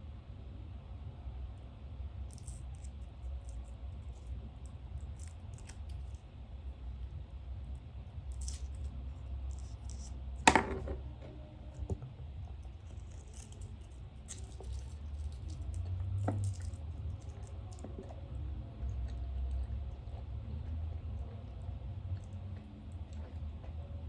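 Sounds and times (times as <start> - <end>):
low room hum: 0.0 - 24.0
object knocked on desk: 10.5 - 11.0.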